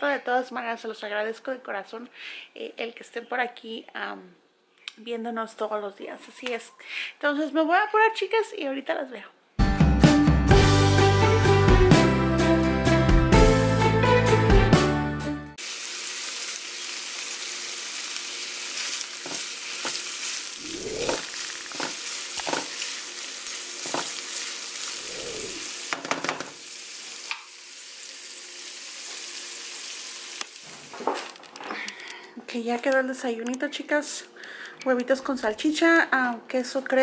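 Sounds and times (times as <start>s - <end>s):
intro music: 9.6s - 15.6s
sausage and onion sizzling in pan: 15.6s - 31.1s.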